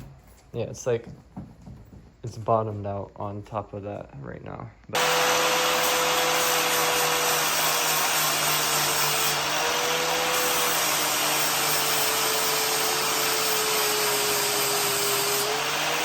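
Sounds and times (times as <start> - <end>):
power grinder grinding metal: 5.0 - 16.0.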